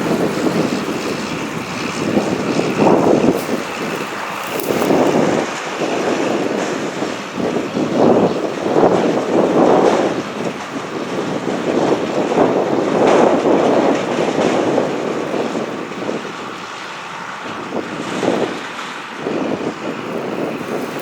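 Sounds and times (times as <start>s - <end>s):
combine harvester running: 0.0s - 5.4s
wind buffeting microphone: 0.0s - 16.7s, 17.4s - 21.0s.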